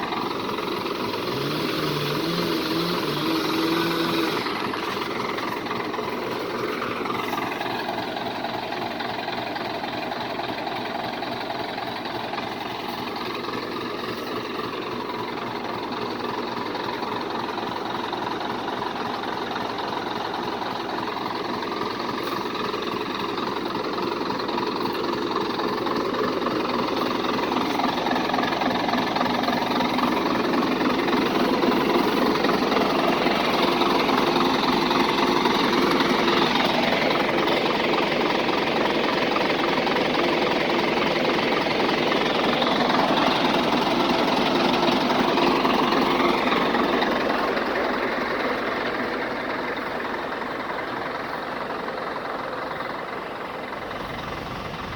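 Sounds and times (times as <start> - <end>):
truck diesel engine running: 0.0 - 54.9.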